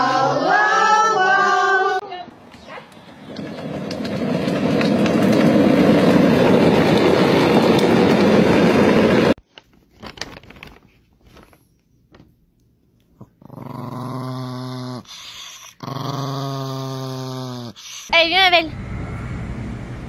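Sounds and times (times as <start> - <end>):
small dog growling: 13.1 - 18.1.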